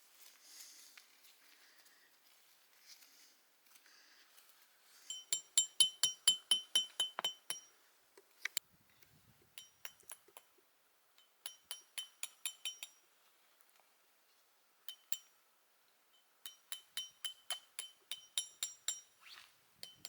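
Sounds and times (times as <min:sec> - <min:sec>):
clinking on small ringing vessel: 0:05.1 - 0:07.8, 0:09.6 - 0:10.5, 0:11.2 - 0:13.0, 0:14.9 - 0:15.4, 0:16.2 - 0:19.2.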